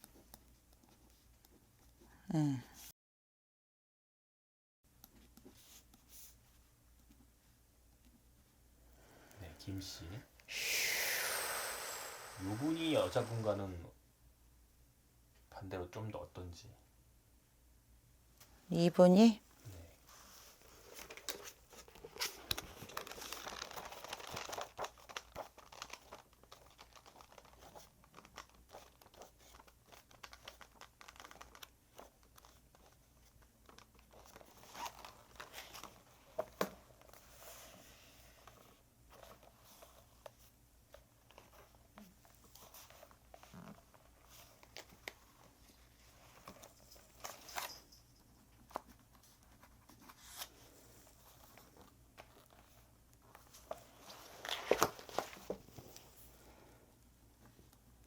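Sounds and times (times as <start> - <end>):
paper rustling and crinkling: 20.1 - 47.9, 48.6 - 56.4.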